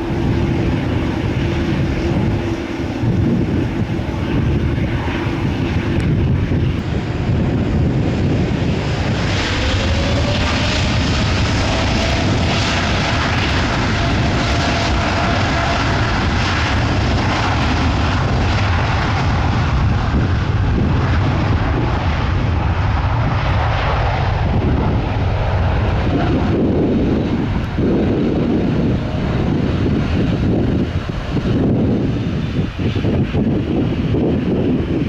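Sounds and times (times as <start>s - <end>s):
jet engines rumbling: 0.0s - 35.0s
wind buffeting microphone: 0.0s - 35.0s.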